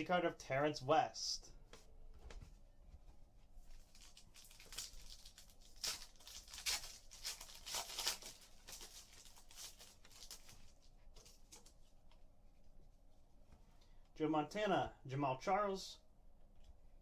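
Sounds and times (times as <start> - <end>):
foil wrappers tearing and crinkling: 3.8 - 11.7.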